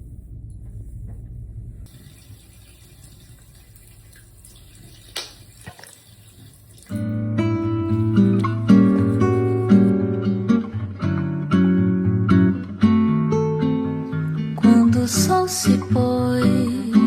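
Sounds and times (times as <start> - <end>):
plucked acoustic guitar: 6.9 - 17.0.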